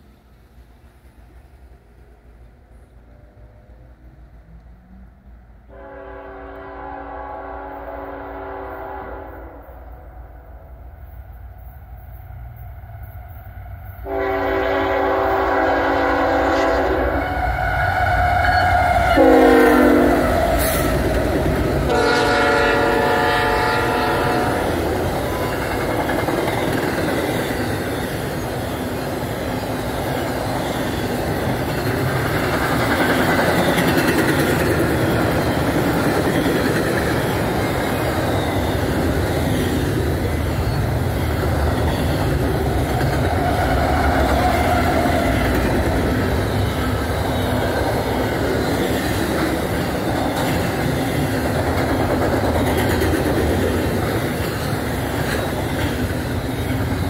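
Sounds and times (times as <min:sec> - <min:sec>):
train rumble and wheel clatter: 0:00.0 - 0:57.0
locomotive air horn: 0:05.7 - 0:09.9, 0:14.0 - 0:21.0, 0:21.9 - 0:25.5.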